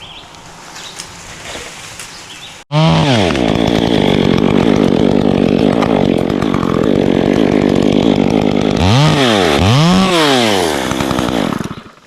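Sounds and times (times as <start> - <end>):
chainsaw cutting wood: 2.7 - 12.0.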